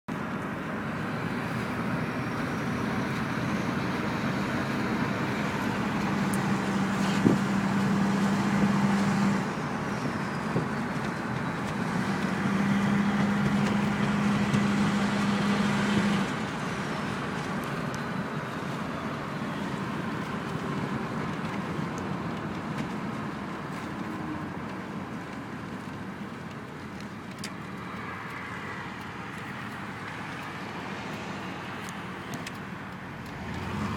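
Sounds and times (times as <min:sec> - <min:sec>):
diesel engine accelerating hard: 0:00.1 - 0:33.9.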